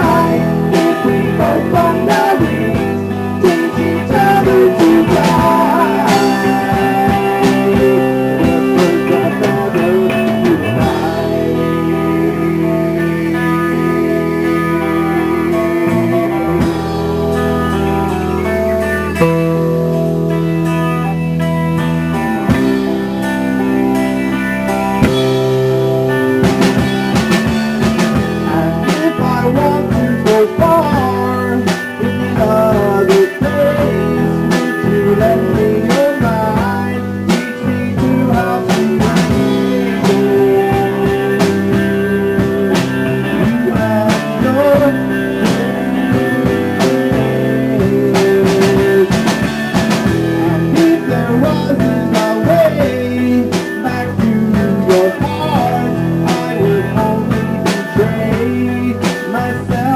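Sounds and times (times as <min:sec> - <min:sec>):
drum kit steady beat: 0:00.0 - 0:59.9
guitar with sliding notes: 0:00.0 - 0:59.9.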